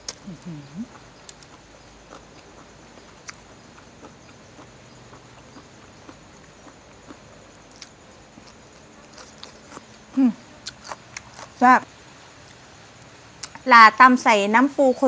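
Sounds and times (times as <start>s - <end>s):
soft chewing: 0.0s - 11.6s
faint background hiss: 0.0s - 15.0s.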